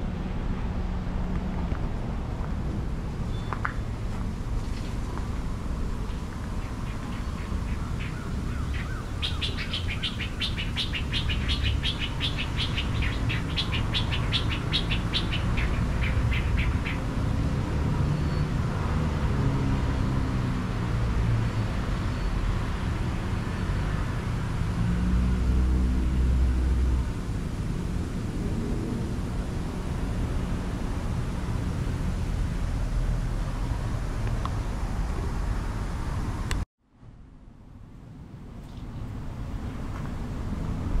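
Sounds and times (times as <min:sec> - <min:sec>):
bird rapid high chirps: 0:06.8 - 0:17.0.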